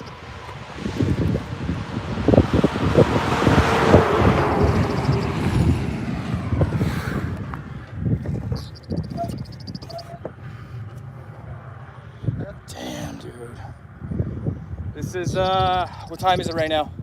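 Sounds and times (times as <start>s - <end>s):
irregular low thuds: 0.0s - 12.7s
storm wind buffeting microphone: 0.0s - 17.0s.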